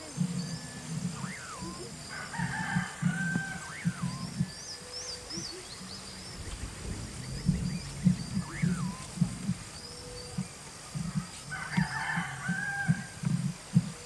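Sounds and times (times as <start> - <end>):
irregular low pulsing: 0.0 - 14.0
bird whistle rising and falling: 0.4 - 10.5.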